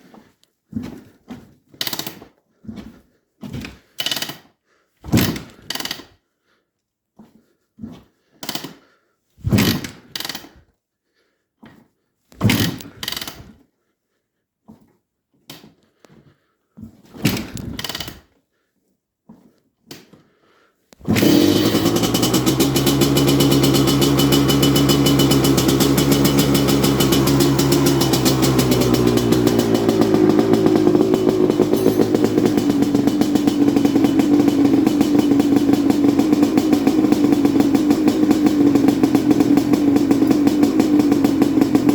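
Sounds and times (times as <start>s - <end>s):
motorcycle engine running: 21.1s - 41.9s
motorcycle kick-starter kicks: 21.1s - 41.9s.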